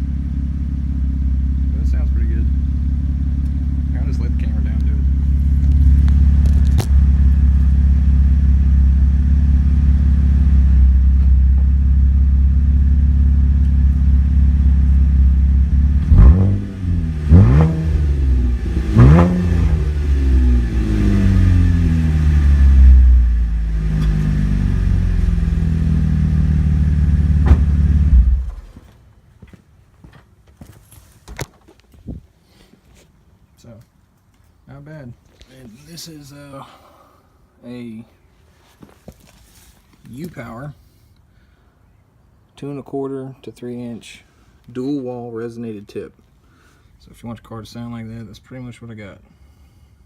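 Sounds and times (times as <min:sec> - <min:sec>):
car exhaust idling and revving: 0:00.0 - 0:28.8.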